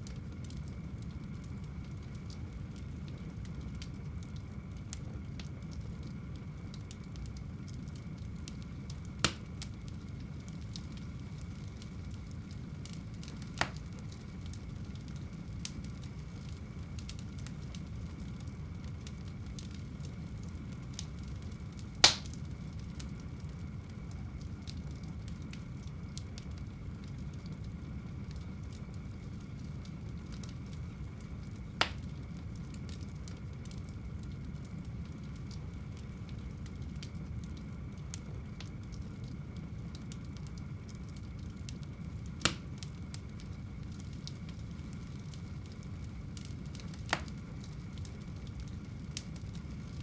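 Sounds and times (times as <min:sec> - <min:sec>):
sharp fire pops: 0:08.0 - 0:12.2, 0:12.8 - 0:18.5, 0:20.9 - 0:22.5, 0:31.5 - 0:32.3, 0:42.4 - 0:42.9, 0:46.4 - 0:49.7.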